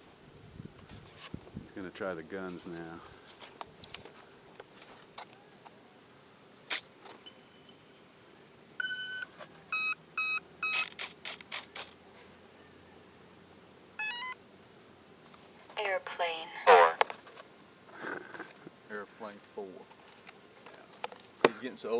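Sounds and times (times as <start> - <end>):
electronic tone: 8.8 - 10.9, 14.0 - 14.4
short beeps: 8.8 - 10.9, 14.0 - 14.4
rising electronic chirp: 14.0 - 14.4.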